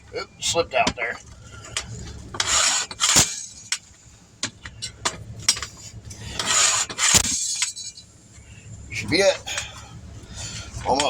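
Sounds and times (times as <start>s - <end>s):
tire tool scraping: 1.6s - 3.9s, 4.8s - 8.1s
metal clank: 1.7s - 3.9s, 6.4s - 8.1s.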